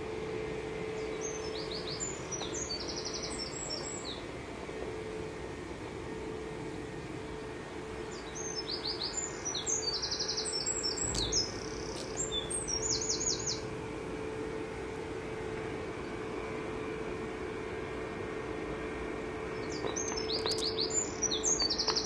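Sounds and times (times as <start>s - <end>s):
low hum: 0.0s - 22.0s
bird singing rapid notes: 1.0s - 4.2s, 8.0s - 13.7s, 19.5s - 22.0s.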